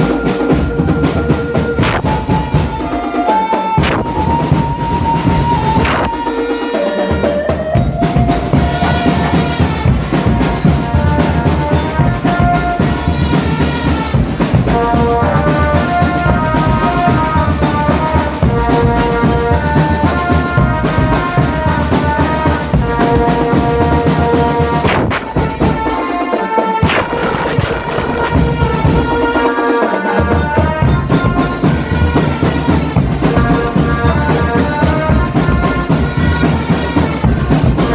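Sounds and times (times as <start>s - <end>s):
marching drum band playing: 0.0s - 37.9s.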